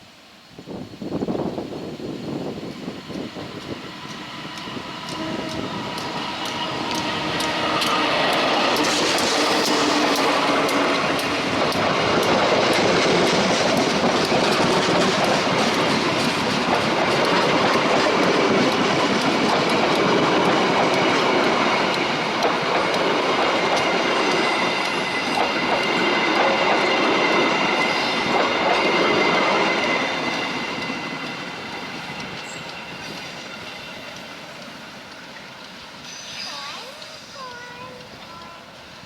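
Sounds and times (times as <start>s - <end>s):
train wheels clattering over rail joints: 2.4s - 39.0s
high wheel squeal: 36.0s - 37.4s.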